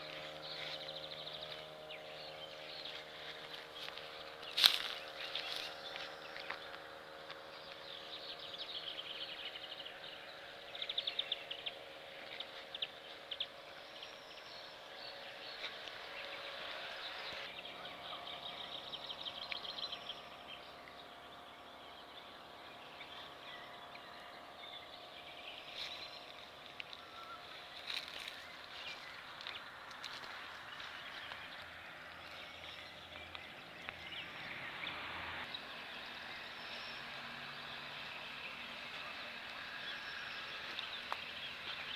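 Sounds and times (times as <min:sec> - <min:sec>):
small birds chirping: 0:00.0 - 0:41.9
steady low hum: 0:00.0 - 0:41.9.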